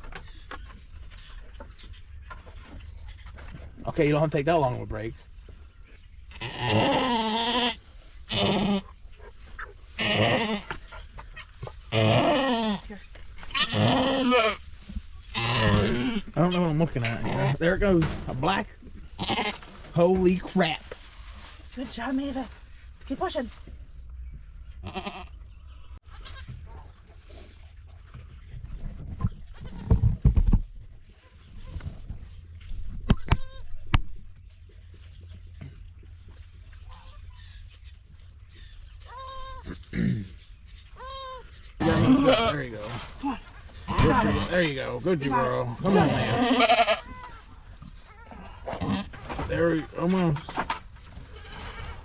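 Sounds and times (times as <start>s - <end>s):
goat bleating loudly: 6.3s - 8.8s, 10.0s - 10.7s, 11.9s - 12.9s, 13.5s - 14.6s, 15.3s - 16.2s, 19.2s - 19.6s, 24.8s - 25.4s, 26.1s - 26.4s, 41.0s - 42.6s, 43.9s - 44.5s, 45.8s - 47.5s.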